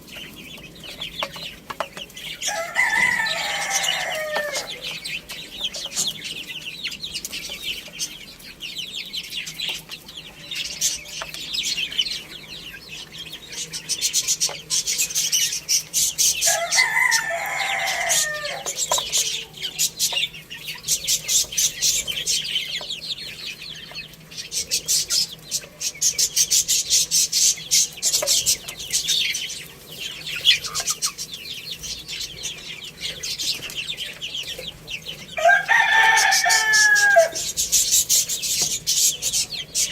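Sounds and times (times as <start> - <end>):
chickens clucking: 0.0 - 39.9
small birds chirping: 0.0 - 39.9
rooster crowing: 2.4 - 5.0, 16.4 - 19.9, 35.4 - 37.5.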